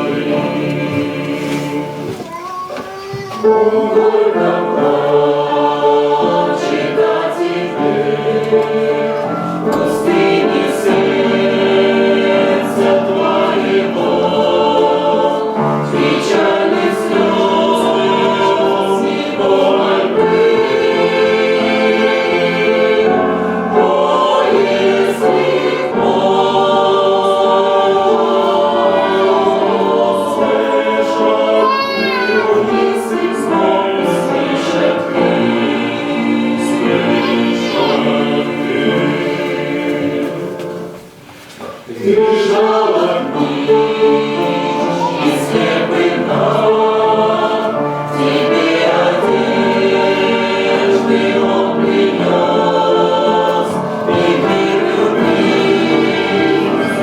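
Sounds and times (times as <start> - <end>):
choir singing a hymn: 0.0 - 2.3, 3.3 - 57.0.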